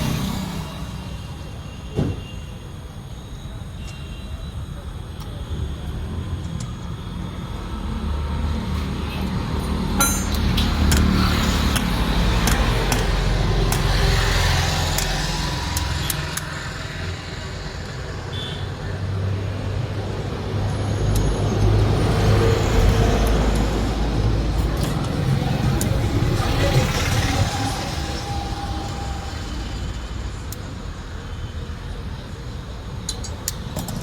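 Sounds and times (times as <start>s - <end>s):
sharp clicks: 10.3s - 16.8s
low engine rumble: 21.5s - 34.0s.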